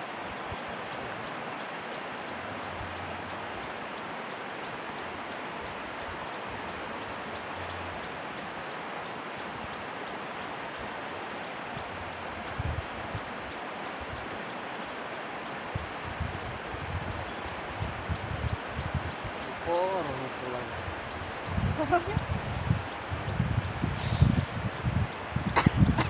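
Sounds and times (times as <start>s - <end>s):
steady rushing noise: 20.7s - 26.0s.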